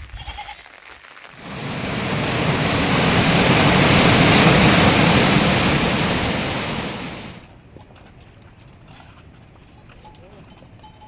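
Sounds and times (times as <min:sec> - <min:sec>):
heavy rain pouring: 0:01.4 - 0:07.4.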